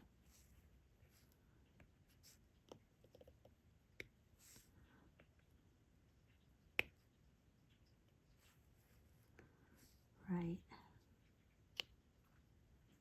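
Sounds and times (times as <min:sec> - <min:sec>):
pen clicks and taps: 0:02.6 - 0:04.2, 0:06.7 - 0:07.0.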